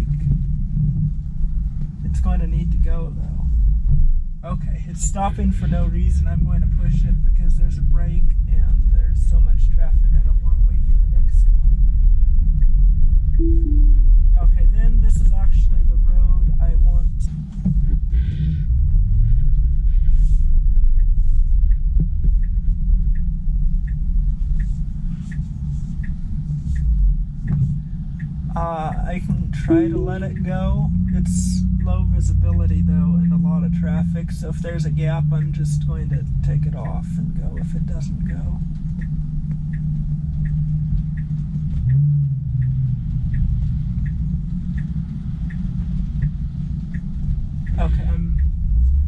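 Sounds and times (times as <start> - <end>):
car cabin road rumble: 0.0 - 49.0
turn signal ticking: 11.6 - 49.0.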